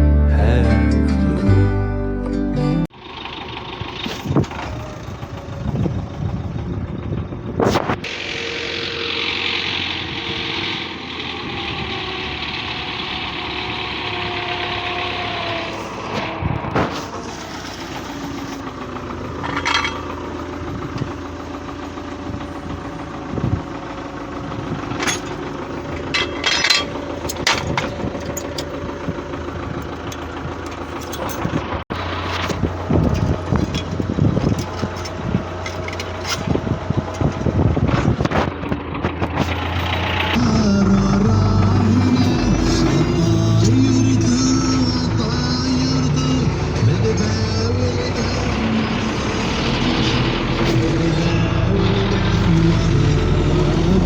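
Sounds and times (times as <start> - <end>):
tractor diesel engine running: 0.0 - 54.0
knocks and clatter: 16.1 - 40.4.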